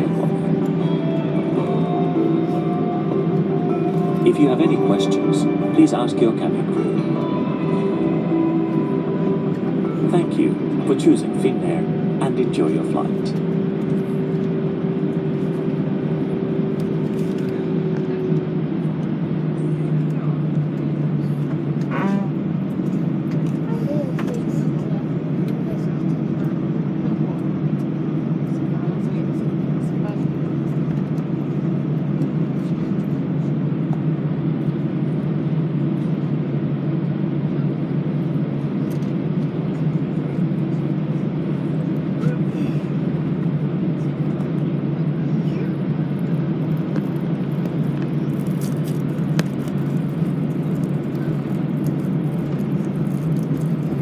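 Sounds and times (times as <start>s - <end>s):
steady high tone: 0.0s - 18.7s
aircraft cabin hum: 0.0s - 54.0s.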